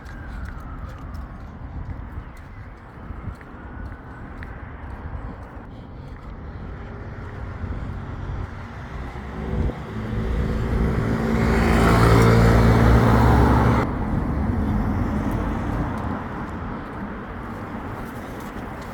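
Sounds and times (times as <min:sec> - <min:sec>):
traffic hum: 0:00.0 - 0:18.9
vehicle driving past: 0:06.4 - 0:16.3.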